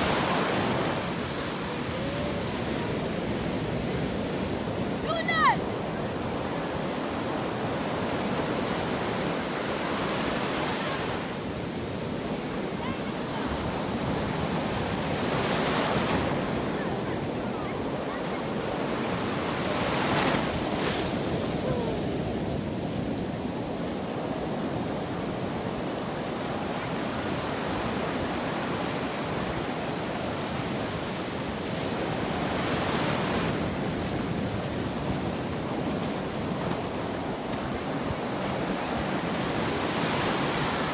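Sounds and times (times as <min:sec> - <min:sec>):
sea surf washing onto shore: 0:00.0 - 0:40.9.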